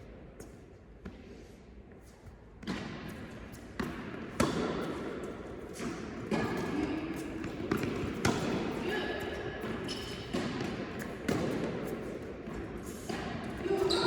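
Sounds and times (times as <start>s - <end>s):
tennis ball impacts: 9.6s - 11.8s.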